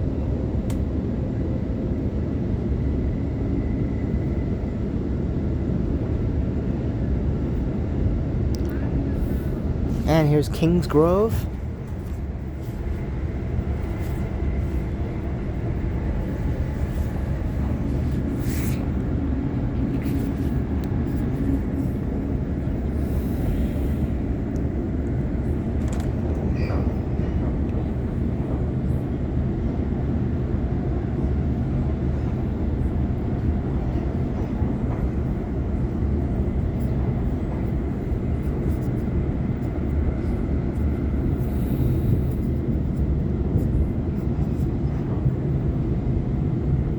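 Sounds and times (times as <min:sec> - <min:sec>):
train wheels rumbling on track: 0:11.3 - 0:46.9.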